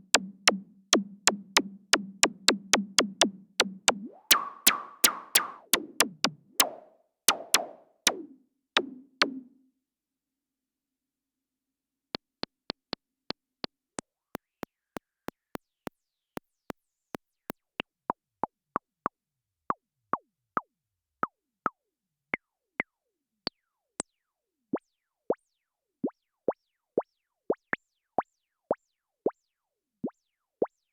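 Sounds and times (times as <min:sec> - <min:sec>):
synth drum clicks: 0:00.0 - 0:09.5
synth zap with falling pitch: 0:02.2 - 0:09.5.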